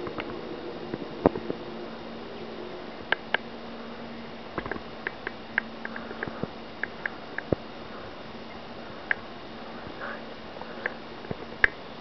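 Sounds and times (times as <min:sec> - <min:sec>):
small birds chirping: 0:05.0 - 0:11.8
sharp clicks: 0:10.8 - 0:11.8.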